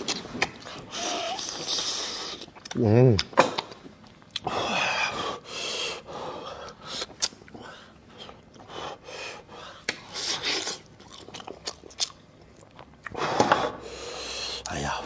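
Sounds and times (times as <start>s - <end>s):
wet chewing and mouth clicks: 0.0s - 4.5s, 6.7s - 7.7s, 10.4s - 13.2s.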